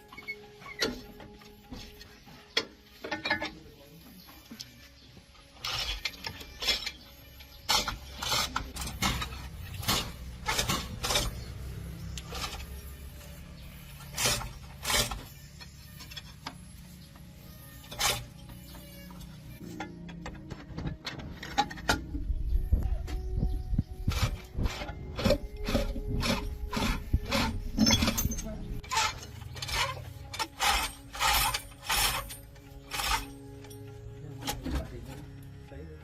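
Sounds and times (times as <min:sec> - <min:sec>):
hand tools clinking on metal: 0:03.0 - 0:03.7, 0:24.8 - 0:35.3
low mechanical rumble: 0:08.7 - 0:35.4.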